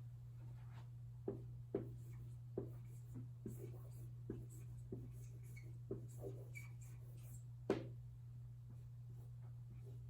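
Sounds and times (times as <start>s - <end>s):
steady low hum: 0.0s - 10.0s
pen tapping and writing: 1.3s - 7.9s.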